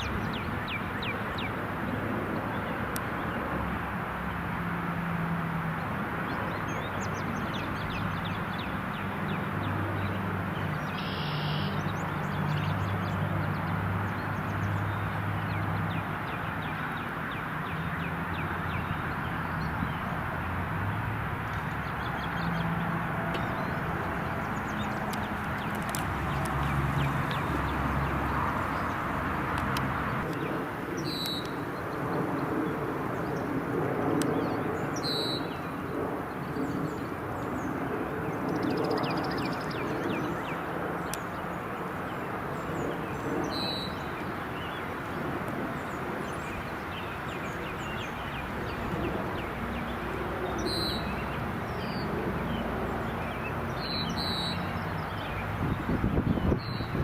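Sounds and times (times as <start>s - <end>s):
outdoor background noise: 0.0s - 57.0s
bird chirping: 10.6s - 13.6s, 31.0s - 31.6s, 50.6s - 55.4s.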